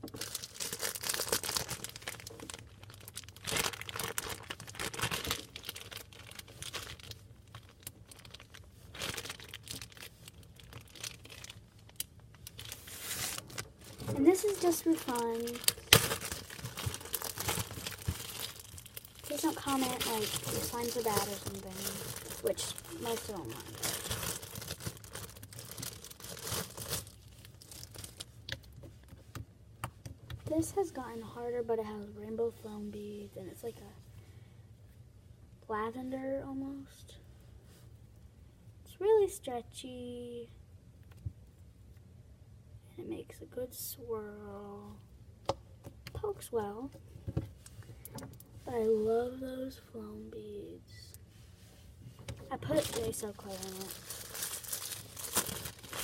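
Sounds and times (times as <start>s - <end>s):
slime container crinkling: 0.0s - 29.0s, 52.4s - 56.0s.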